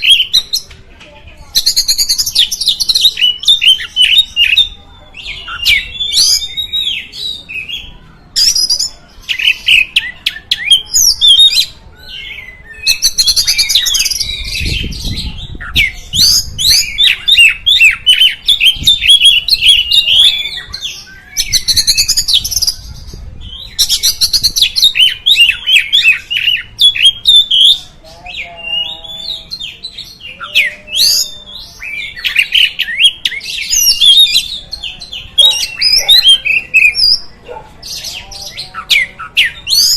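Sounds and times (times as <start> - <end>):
bird singing whistled song: 1.6 - 27.8.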